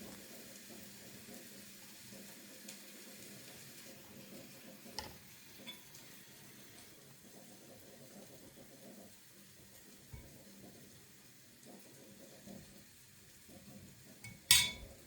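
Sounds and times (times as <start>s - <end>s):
food sizzling in a frying pan: 0.0s - 15.0s
utensil clink: 14.2s - 15.0s.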